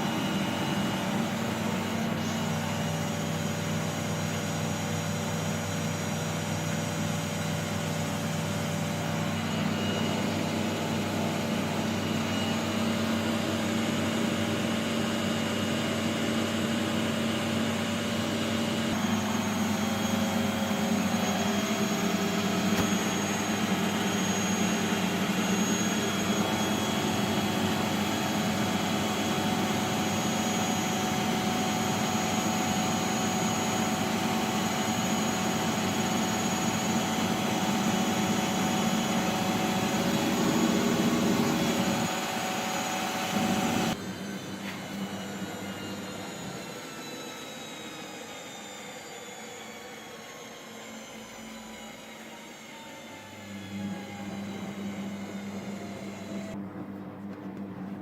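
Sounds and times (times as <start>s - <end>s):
washing machine motor whine and hum: 0.0s - 58.0s.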